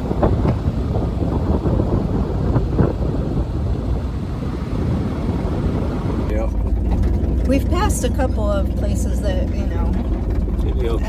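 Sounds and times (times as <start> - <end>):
road noise: 0.0 - 11.0
truck engine rumble: 0.0 - 11.0.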